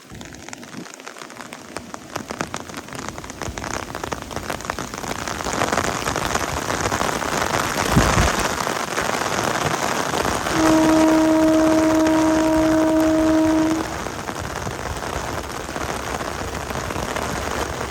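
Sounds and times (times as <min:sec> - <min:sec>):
train rumble and rail clatter: 0:10.4 - 0:17.9
locomotive horn blast: 0:10.5 - 0:14.1.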